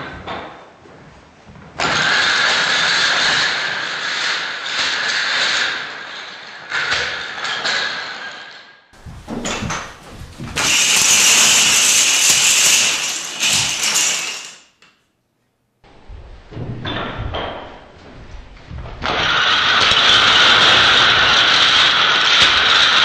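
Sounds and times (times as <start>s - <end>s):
wooden planks clattering on floor: 9.0s - 14.6s.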